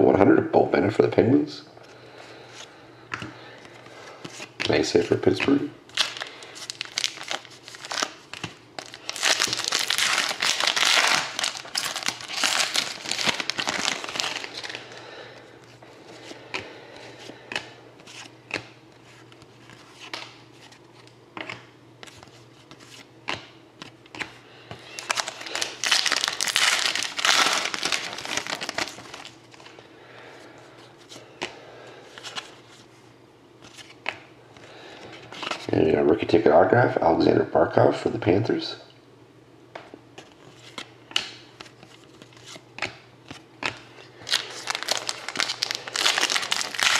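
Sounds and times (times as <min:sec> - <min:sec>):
wrappers torn open and crinkled: 0:05.9 - 0:15.0, 0:24.9 - 0:29.4, 0:44.2 - 0:46.9
cards being handled clicks: 0:21.0 - 0:24.8.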